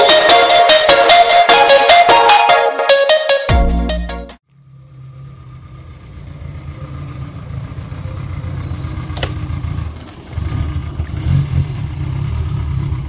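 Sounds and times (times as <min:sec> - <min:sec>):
car engine idling: 0:04.5 - 0:13.0.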